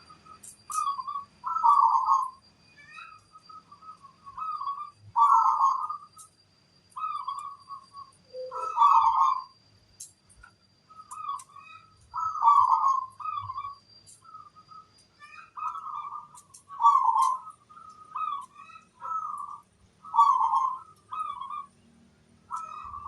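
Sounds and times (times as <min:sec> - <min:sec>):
dove cooing: 0:00.7 - 0:02.4, 0:04.3 - 0:06.0, 0:08.4 - 0:09.5, 0:11.1 - 0:14.6, 0:15.3 - 0:21.7, 0:22.5 - 0:23.0.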